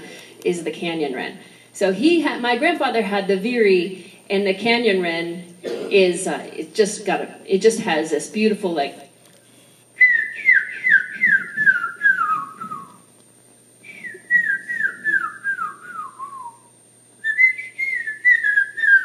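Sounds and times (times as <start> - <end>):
person whistling bird song: 10.0 - 13.0, 13.8 - 19.0.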